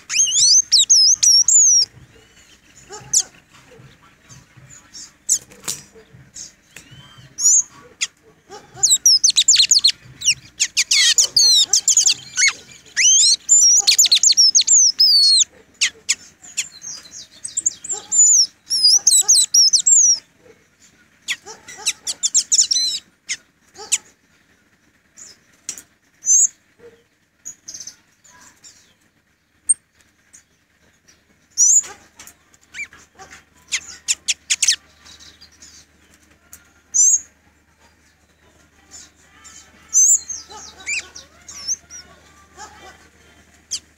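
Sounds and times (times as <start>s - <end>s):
pet bird warbling chirps: 0.0s - 20.4s, 21.2s - 24.2s, 26.2s - 26.6s, 31.5s - 36.0s, 36.9s - 37.3s, 38.9s - 43.0s, 43.6s - 43.9s.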